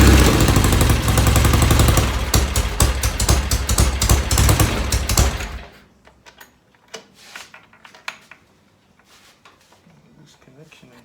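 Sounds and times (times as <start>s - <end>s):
motorcycle engine idling: 0.0s - 5.8s.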